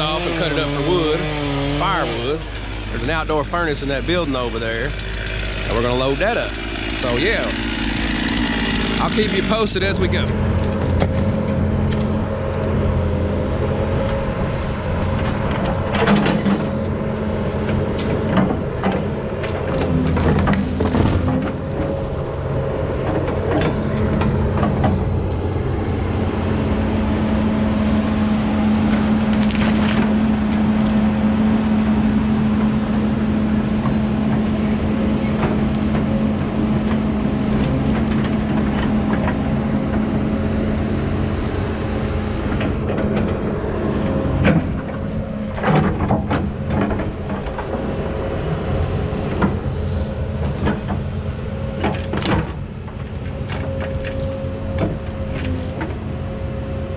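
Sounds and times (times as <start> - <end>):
excavator diesel engine running: 0.0 - 56.9
sharp cracks and knocks: 17.6 - 21.9, 28.8 - 30.6.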